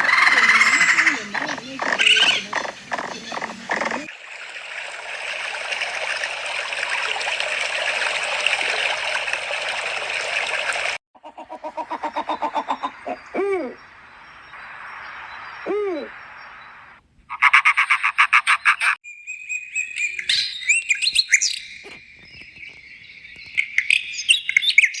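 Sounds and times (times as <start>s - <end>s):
birds chirping and whistling: 0.0s - 4.1s, 11.6s - 17.0s, 18.4s - 25.0s
brief arched animal calls: 11.2s - 13.9s, 15.6s - 16.4s
steady hiss: 13.8s - 17.0s.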